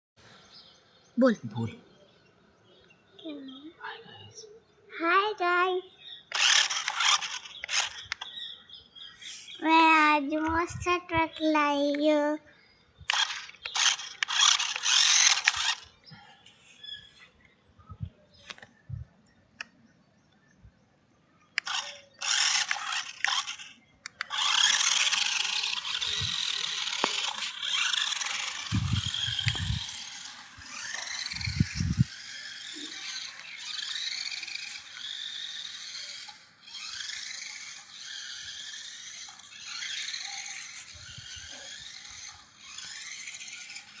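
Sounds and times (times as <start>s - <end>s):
toy truck mechanical whirring: 6.0s - 9.6s, 13.0s - 16.2s, 21.5s - 44.0s.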